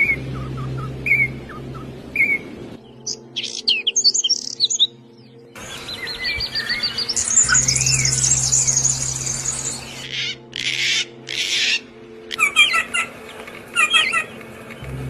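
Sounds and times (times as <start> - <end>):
low steady hum: 0.0 - 3.3, 4.9 - 10.1, 14.4 - 15.0
songbird trilling: 0.0 - 4.9, 5.6 - 13.1
songbird chirping: 0.0 - 15.0
harsh scratchy bird calls: 5.6 - 14.9.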